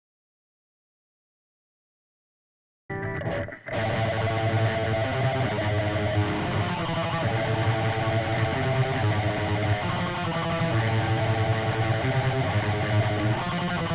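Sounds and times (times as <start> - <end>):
distorted electric guitar riff: 2.9 - 13.9.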